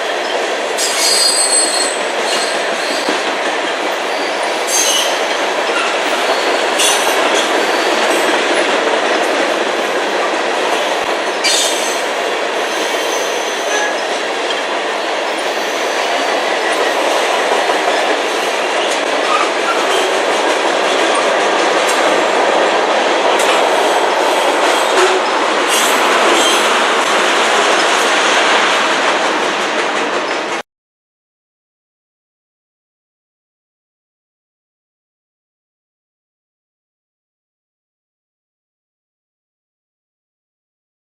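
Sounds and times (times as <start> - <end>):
train wheels rumbling on rail: 0.0 - 30.6.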